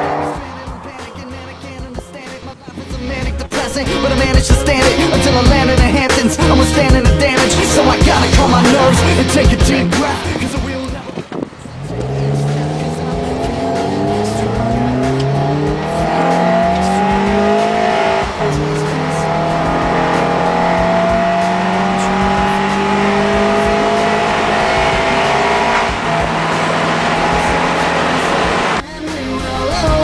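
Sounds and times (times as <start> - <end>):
car engine revving while accelerating: 0.0 - 2.6, 4.1 - 28.8.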